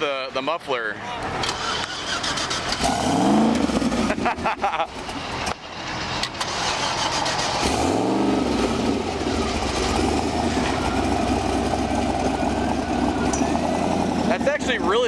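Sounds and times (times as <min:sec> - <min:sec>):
car engine starting and idling: 0:01.0 - 0:15.0.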